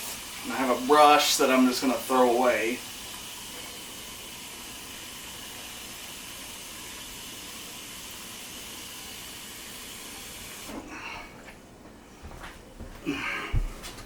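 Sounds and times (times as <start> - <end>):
water running from a faucet: 0.0 - 10.8.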